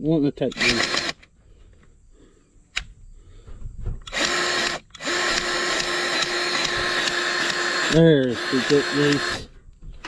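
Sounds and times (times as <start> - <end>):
battery grease gun running: 0.5 - 1.3, 4.0 - 9.5.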